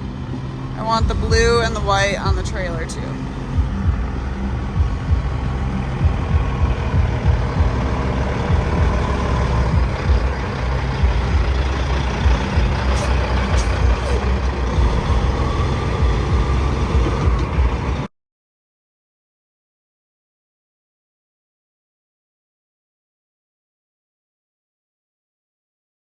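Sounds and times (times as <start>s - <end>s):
truck diesel engine running: 0.0s - 18.1s.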